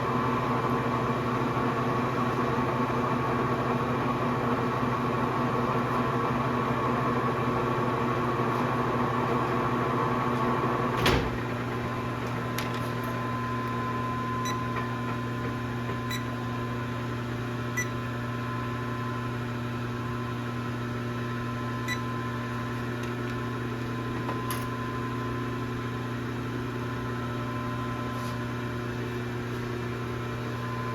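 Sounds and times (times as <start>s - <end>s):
lathe running with hum: 0.0s - 30.9s.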